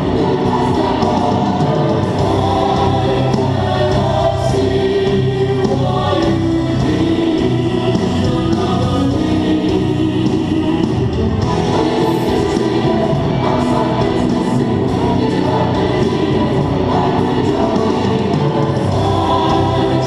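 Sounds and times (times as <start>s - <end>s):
choir singing held notes: 0.0s - 20.0s
musical backing: 0.0s - 20.0s.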